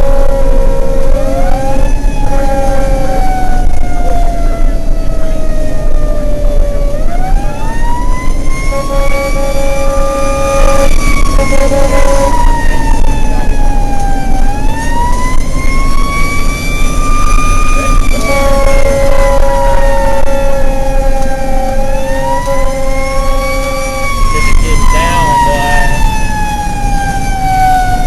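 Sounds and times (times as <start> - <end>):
horn-like tone bursts: 0.0 - 3.4, 8.5 - 12.8, 17.6 - 26.1
mechanical siren wailing: 0.0 - 28.0
truck engine and road rumble: 0.0 - 28.0.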